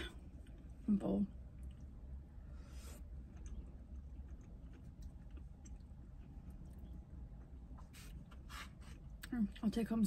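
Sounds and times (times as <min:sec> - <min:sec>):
chewing vegetables: 0:03.0 - 0:09.6.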